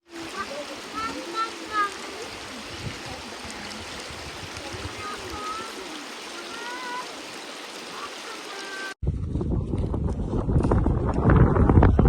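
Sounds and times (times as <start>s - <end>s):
stream water rushing: 0.0s - 9.0s.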